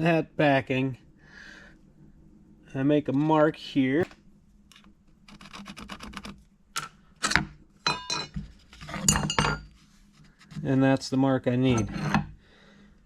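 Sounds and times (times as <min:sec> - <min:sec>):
metal rod clinking on wood: 0:07.2 - 0:09.7.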